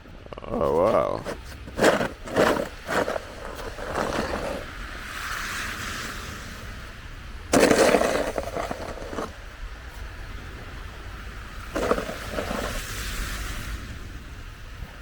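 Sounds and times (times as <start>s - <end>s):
snow shovel scraping pavement: 0.7s - 6.2s, 7.4s - 10.1s, 11.6s - 13.6s.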